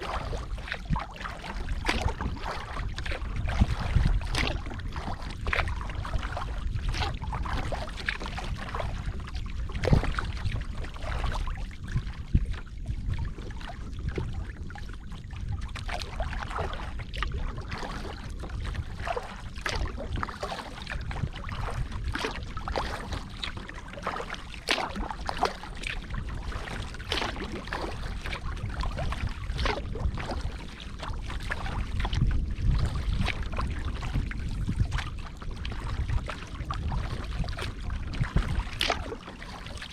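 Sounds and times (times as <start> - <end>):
paddle splashing in water: 0.0 - 39.9
steady low rumble: 0.0 - 39.9.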